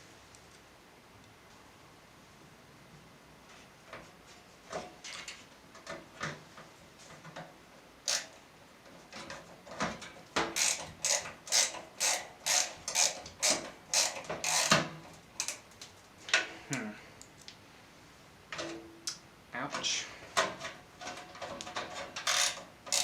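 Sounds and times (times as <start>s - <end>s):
screwdriver ratcheting: 8.0s - 8.4s, 9.2s - 15.6s, 21.0s - 23.0s
screwdriver clicks and scrapes: 8.1s - 8.4s, 10.5s - 14.8s, 21.0s - 23.0s.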